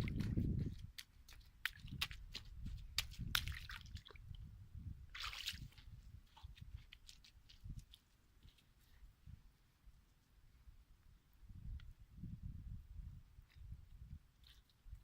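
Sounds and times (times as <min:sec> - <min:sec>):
small water splashes: 0:00.0 - 0:04.4, 0:05.1 - 0:08.1
water sloshing and dripping: 0:00.0 - 0:04.5, 0:05.1 - 0:08.6.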